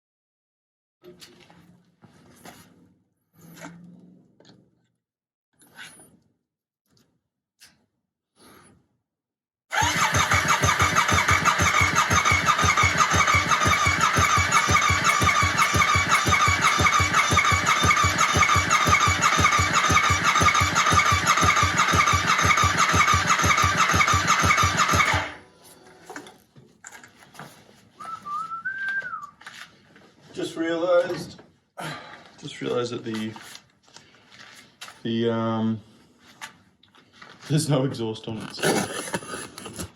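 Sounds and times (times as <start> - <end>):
motorcycle engine idling: 9.8 - 25.4.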